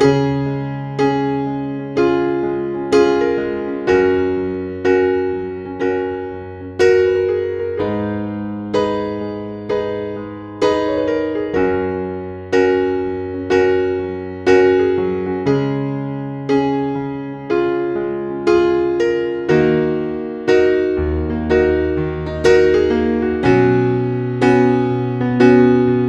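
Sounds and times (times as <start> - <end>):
gentle electric piano music: 0.0 - 26.0.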